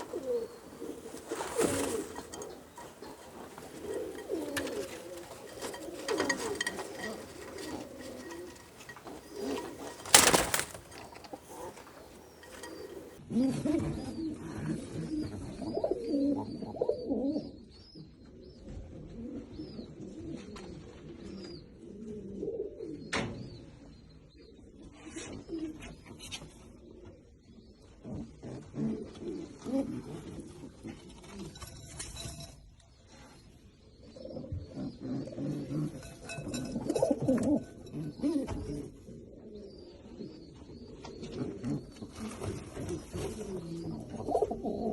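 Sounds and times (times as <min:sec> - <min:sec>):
pigeons cooing: 0:00.0 - 0:13.2, 0:26.7 - 0:31.4, 0:34.0 - 0:44.9.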